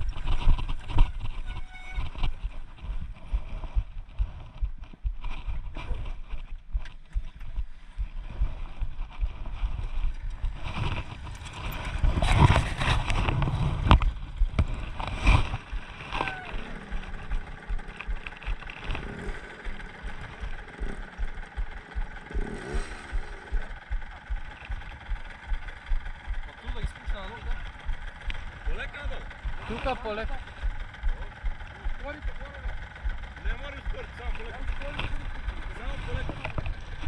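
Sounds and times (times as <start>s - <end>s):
dirt bike engine running: 0.0s - 37.0s.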